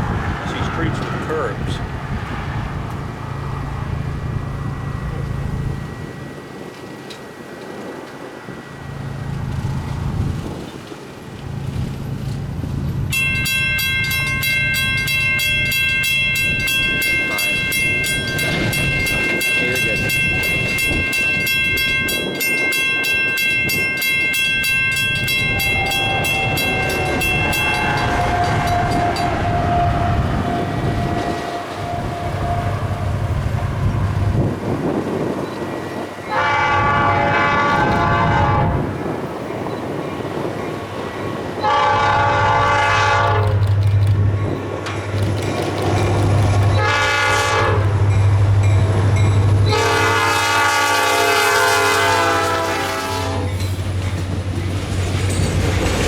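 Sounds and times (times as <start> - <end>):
locomotive engine rumble: 0.0 - 56.0
train on rails: 0.0 - 56.0
locomotive air horn blasts: 25.4 - 34.4, 36.3 - 39.0, 41.6 - 43.6, 46.7 - 48.1, 49.6 - 53.6.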